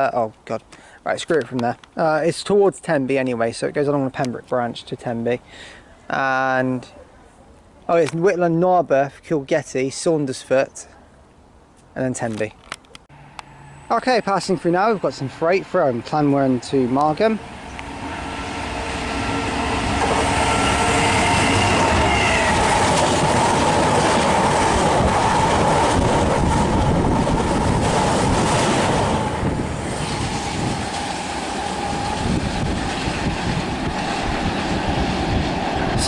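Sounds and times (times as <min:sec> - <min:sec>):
diesel locomotive engine passing: 0:13.1 - 0:36.0
train wheels clickety-clack on rails: 0:19.1 - 0:36.0.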